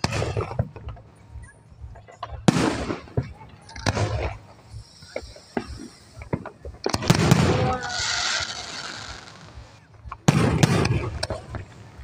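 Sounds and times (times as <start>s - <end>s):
firework crackling: 0.0s - 1.2s, 1.9s - 12.0s
small firework pops: 5.1s - 11.8s
firework shell bursts: 6.9s - 9.6s.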